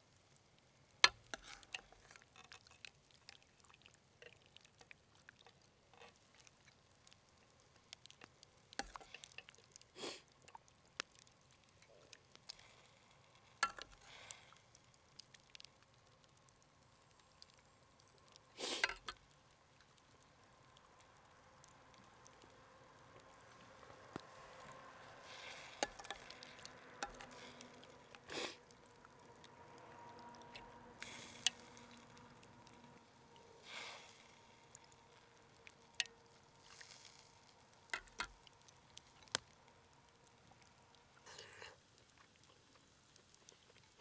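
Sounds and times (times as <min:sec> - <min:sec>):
scraping or pouring sounds: 0:01.1 - 0:04.4, 0:23.4 - 0:36.0.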